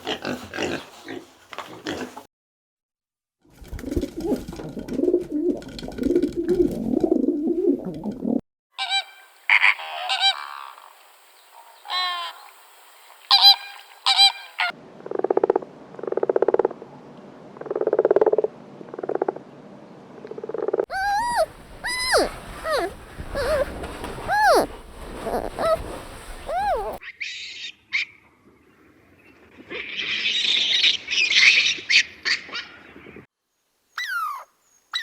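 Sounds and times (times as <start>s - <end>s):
high-pitched animal calls: 20.9s - 27.0s, 34.0s - 35.0s
low pulsed animal calls: 20.9s - 27.0s
low rough animal calls: 20.9s - 27.0s.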